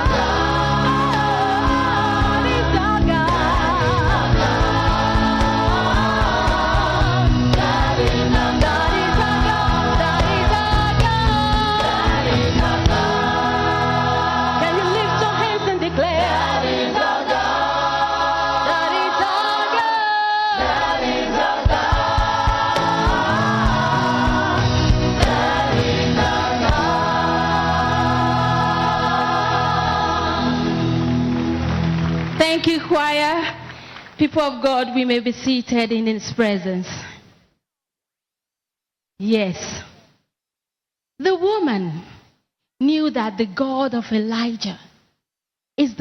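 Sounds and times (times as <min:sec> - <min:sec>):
instrumental backing: 0:00.0 - 0:16.8, 0:20.8 - 0:32.4
church choir singing gospel: 0:00.0 - 0:32.4.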